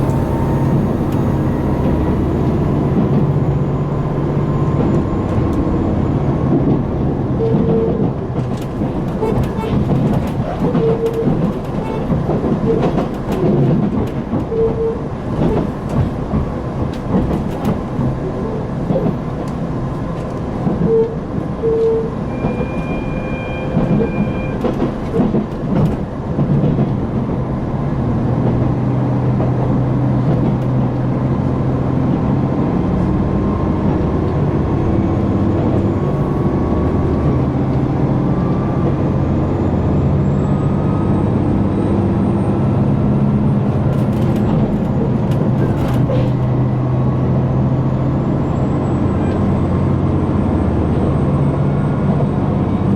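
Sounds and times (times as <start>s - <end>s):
diesel engine drone: 0.0s - 17.2s, 27.2s - 52.9s
rail-joint clicks: 0.0s - 27.8s, 28.4s - 31.2s, 43.6s - 47.4s, 48.3s - 50.0s
track rumble: 0.0s - 52.9s.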